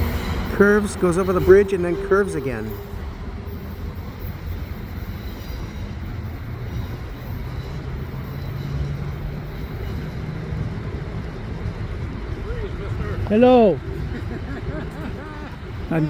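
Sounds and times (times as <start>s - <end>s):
distant traffic rumble: 0.0s - 16.0s
faint engine hum: 0.0s - 16.0s.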